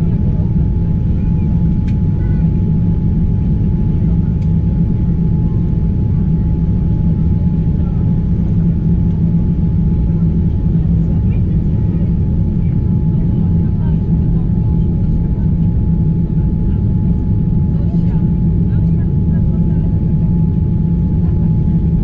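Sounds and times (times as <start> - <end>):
jet engine and airflow rumble: 0.0 - 22.0.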